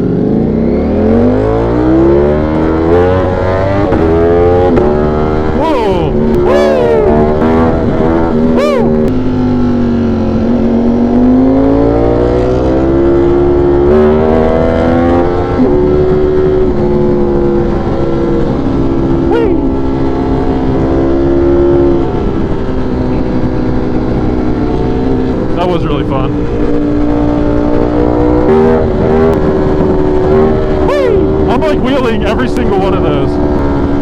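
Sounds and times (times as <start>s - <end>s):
motorcycle engine under throttle: 0.0s - 34.0s
wind rush: 13.4s - 34.0s.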